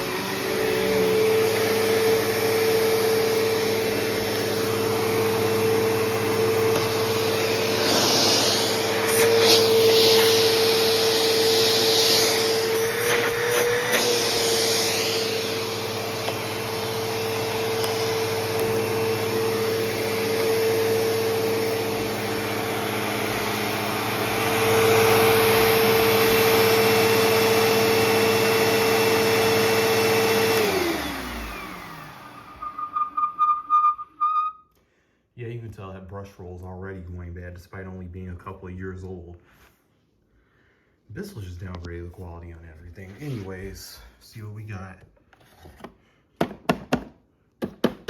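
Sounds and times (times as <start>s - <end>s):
vacuum cleaner motor whine: 0.0s - 34.5s.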